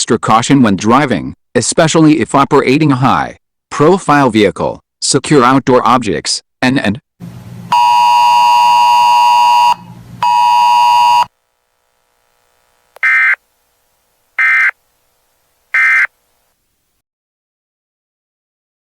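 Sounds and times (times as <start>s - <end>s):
buzzing electronic alert tone: 7.7s - 11.3s, 13.0s - 13.4s, 14.4s - 14.8s, 15.7s - 16.1s
short data bursts: 7.7s - 11.4s, 13.0s - 13.5s, 14.3s - 16.4s.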